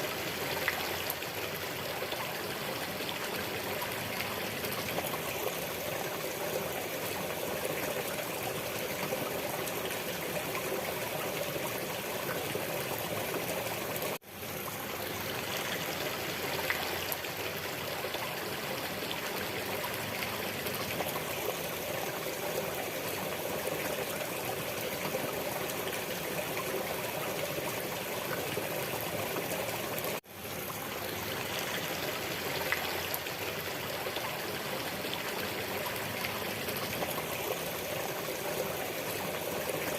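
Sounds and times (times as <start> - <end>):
water stream trickling: 0.0 - 39.9.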